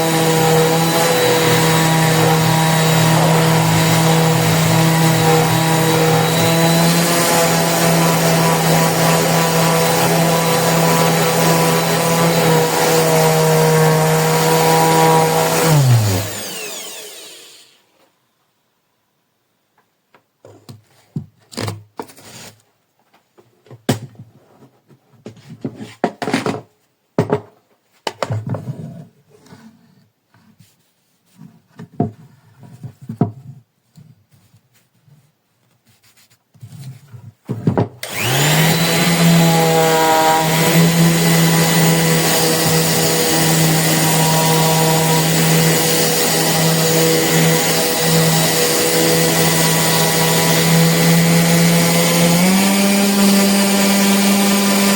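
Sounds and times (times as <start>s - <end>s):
orbital sander running: 0.0s - 17.8s, 38.0s - 54.9s.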